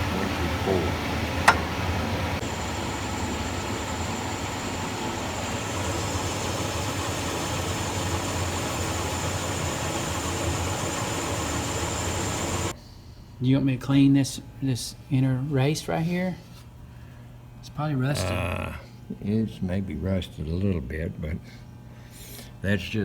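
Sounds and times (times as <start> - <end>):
metal lathe humming: 0.0 - 12.7
thin high whine: 2.4 - 12.7.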